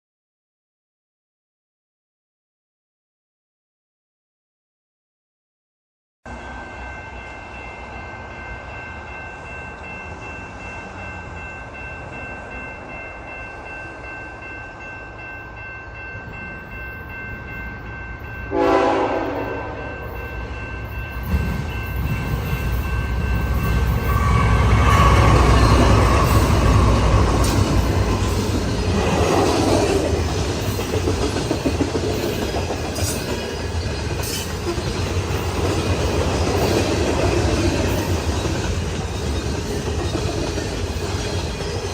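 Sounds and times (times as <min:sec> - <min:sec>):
diesel locomotives rumbling: 0:06.3 - 0:41.9
train horn blast: 0:18.5 - 0:20.0, 0:24.0 - 0:27.4.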